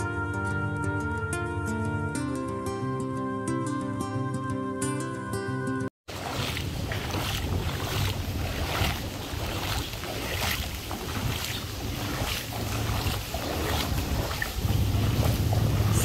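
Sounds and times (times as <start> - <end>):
wind gusts on microphone: 6.1 - 16.0
heavy rain hissing: 14.6 - 16.0.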